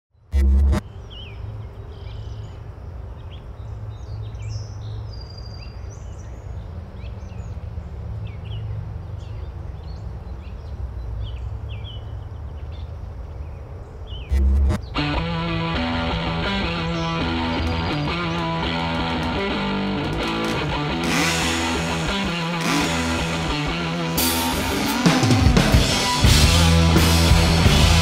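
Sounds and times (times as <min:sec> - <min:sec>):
birds chirping and whistling: 0:14.1 - 0:26.2.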